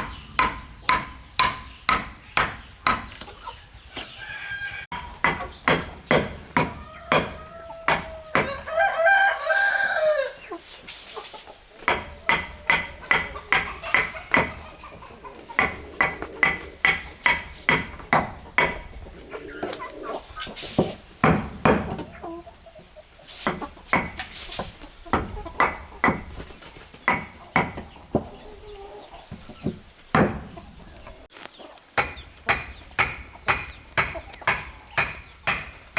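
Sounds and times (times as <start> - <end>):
tool striking wood: 0.0 - 3.3, 4.9 - 8.6, 11.8 - 14.6, 15.6 - 18.8, 20.7 - 22.1, 23.4 - 24.3, 25.1 - 26.3, 27.0 - 28.3, 29.3 - 30.6, 32.0 - 35.9
rooster crowing: 4.0 - 5.0, 6.6 - 10.4.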